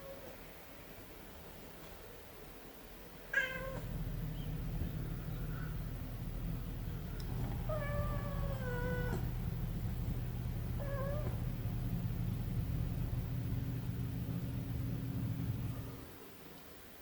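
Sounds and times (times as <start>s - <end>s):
steady low hum: 3.3s - 16.3s
kitten meowing: 3.4s - 4.6s, 7.2s - 9.4s, 10.7s - 11.4s.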